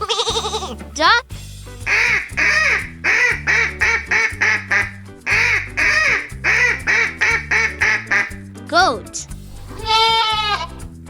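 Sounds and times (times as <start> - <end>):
children's music: 0.0 - 11.0
duck quacking: 1.8 - 8.4.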